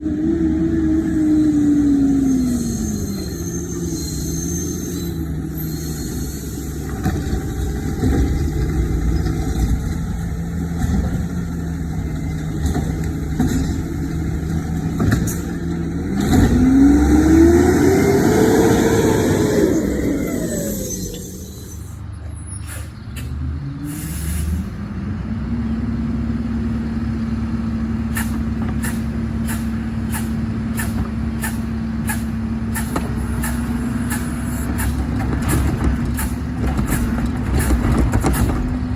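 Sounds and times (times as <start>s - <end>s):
garbage truck engine revving: 0.0s - 38.9s
sharp hisses: 28.1s - 35.1s.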